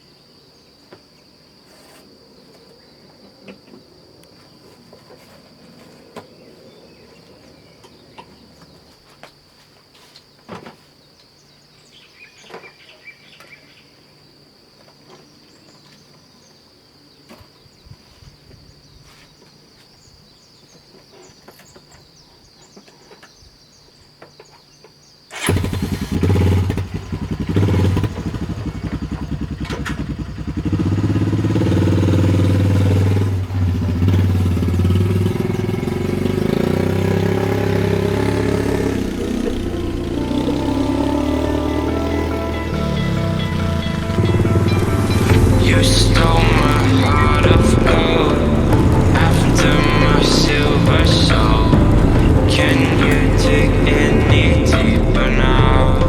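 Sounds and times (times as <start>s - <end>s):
vehicle engine running: 25.5s - 56.0s
insect trill: 28.0s - 54.2s.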